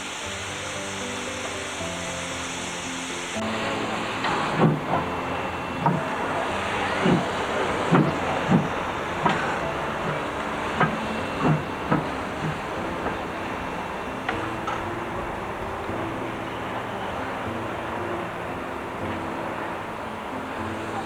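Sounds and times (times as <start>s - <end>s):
railway cars clanking: 0.0s - 21.0s
steady hiss: 0.0s - 21.0s.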